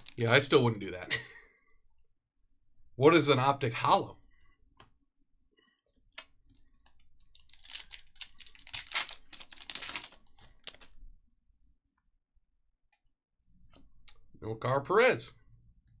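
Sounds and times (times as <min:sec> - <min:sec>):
foil wrapper tearing and crinkling: 0:00.0 - 0:00.5, 0:07.3 - 0:11.0.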